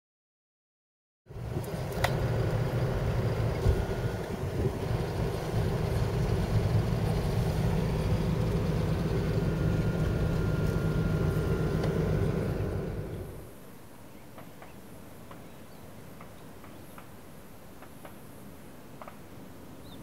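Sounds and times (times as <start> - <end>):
motor vehicle droning: 1.3 - 13.6.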